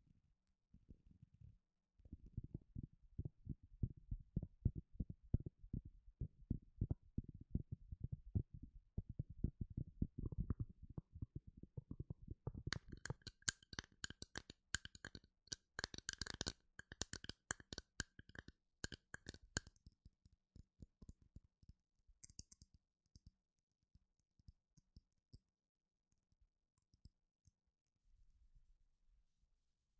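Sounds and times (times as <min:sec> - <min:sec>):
quick taps and clicks: 0:10.2 - 0:23.3.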